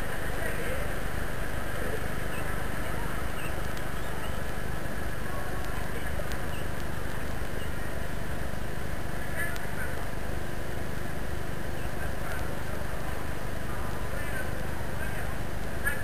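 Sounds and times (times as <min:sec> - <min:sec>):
low outdoor rumble: 0:00.0 - 0:16.0
faint high chirps: 0:02.2 - 0:04.5.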